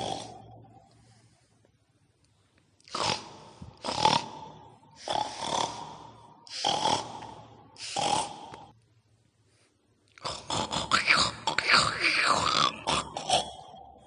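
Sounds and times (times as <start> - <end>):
pig-like snorting grunts: 0.0 - 0.6, 2.9 - 8.7, 10.2 - 13.9.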